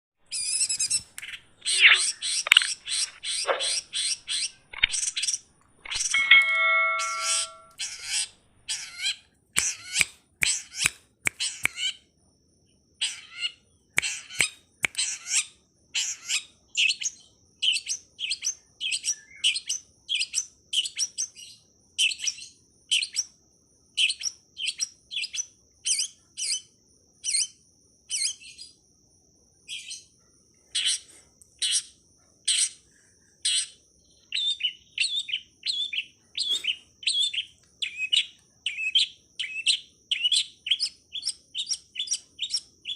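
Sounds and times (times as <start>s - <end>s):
bird chirping rapidly: 0.3s - 12.0s, 33.4s - 42.9s
high thin tone: 5.9s - 7.8s.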